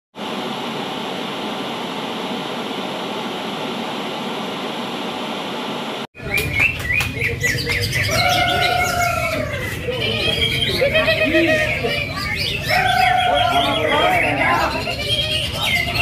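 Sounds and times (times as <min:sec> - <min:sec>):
steady rushing hiss: 0:00.2 - 0:06.1
birds chirping and singing: 0:06.2 - 0:16.0.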